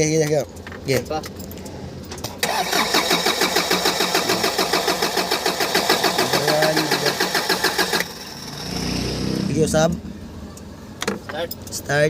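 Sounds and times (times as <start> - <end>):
diesel engine cranking on starter: 2.4 - 8.8.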